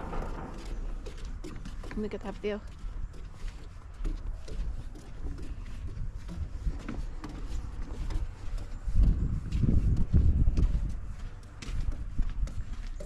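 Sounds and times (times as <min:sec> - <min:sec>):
low rumble: 0:00.0 - 0:02.5
footsteps of people walking: 0:00.0 - 0:13.0.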